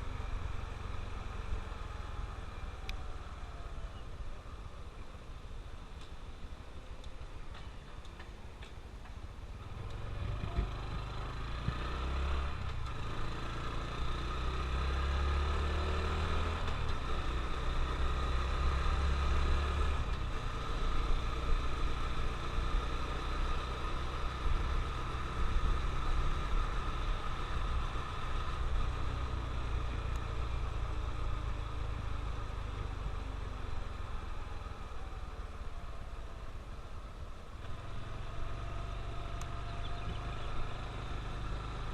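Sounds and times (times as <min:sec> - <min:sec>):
road and wind noise: 0:00.0 - 0:41.9
motorcycle engine running: 0:37.6 - 0:41.9.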